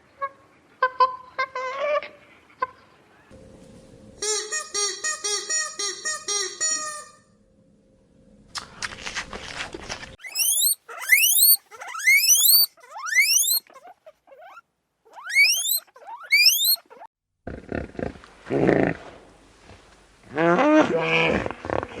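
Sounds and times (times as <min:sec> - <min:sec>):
animal squealing: 0:10.2 - 0:17.1.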